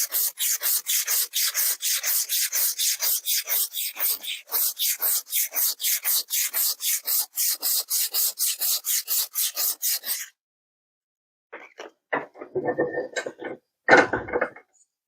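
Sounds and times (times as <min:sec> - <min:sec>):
emery cloth rubbing rusty steel: 0:00.0 - 0:10.3.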